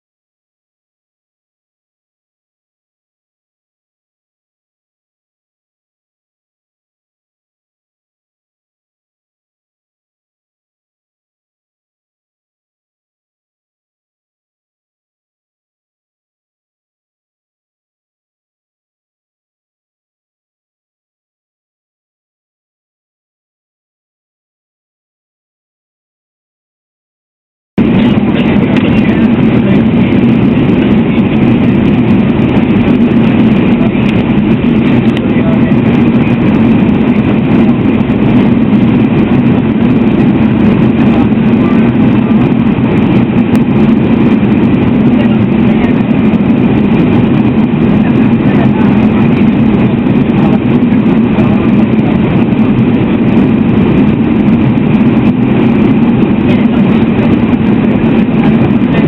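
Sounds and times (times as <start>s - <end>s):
mechanical rumble with low drone: 27.8s - 59.0s.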